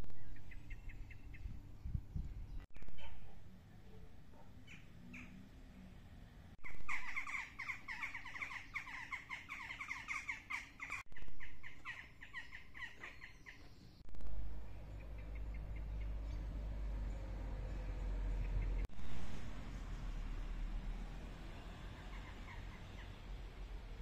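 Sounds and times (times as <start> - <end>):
songbird singing: 0.0 - 18.9.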